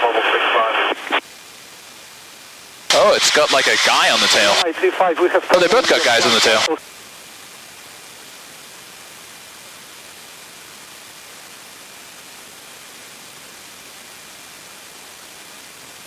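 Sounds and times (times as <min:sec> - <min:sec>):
intercom radio hiss: 0:00.0 - 0:01.2, 0:02.9 - 0:06.8.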